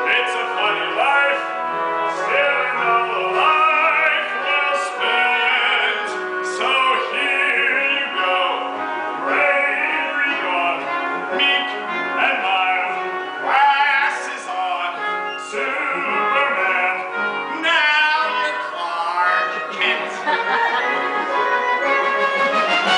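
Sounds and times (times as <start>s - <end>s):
instrumental accompaniment: 0.0s - 22.9s
person singing a show tune: 9.3s - 20.8s.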